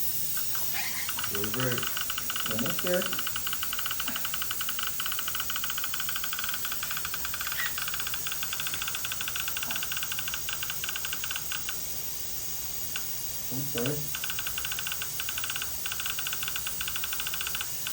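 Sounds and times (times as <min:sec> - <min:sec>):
steady hiss: 0:00.0 - 0:17.9
rapid electronic pulsing: 0:00.4 - 0:17.9.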